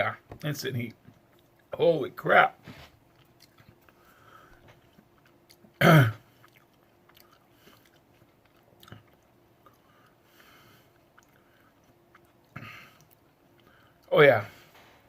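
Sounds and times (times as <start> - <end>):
person chewing: 0.9 - 1.7, 3.0 - 14.1.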